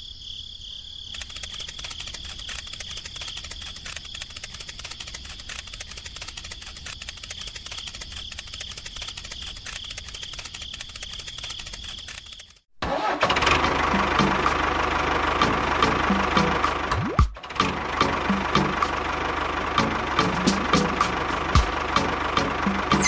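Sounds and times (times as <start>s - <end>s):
crickets chirping: 0.0s - 12.6s
tractor engine idling: 12.8s - 23.0s.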